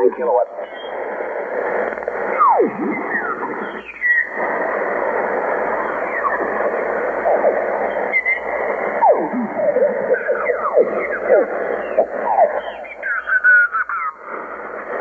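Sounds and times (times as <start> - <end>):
radio static hiss: 0.0 - 15.0
garbled radio voices squawking: 5.9 - 14.2.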